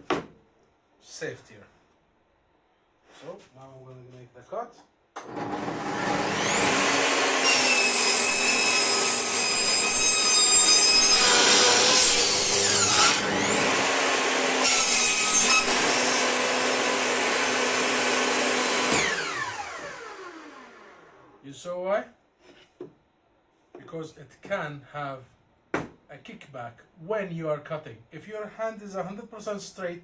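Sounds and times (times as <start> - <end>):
table saw motor whining: 5.2 - 21.4
saw blade rasping through wood: 5.3 - 19.8.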